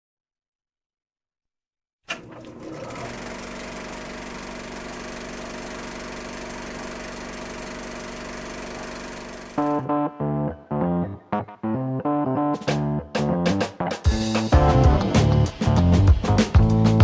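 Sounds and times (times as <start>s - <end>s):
machine humming: 2.1s - 9.8s.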